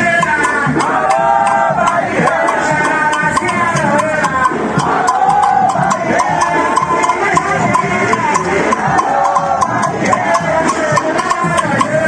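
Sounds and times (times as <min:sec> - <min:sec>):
hand-percussion strikes: 0:00.0 - 0:12.0
voices singing together: 0:00.0 - 0:12.0.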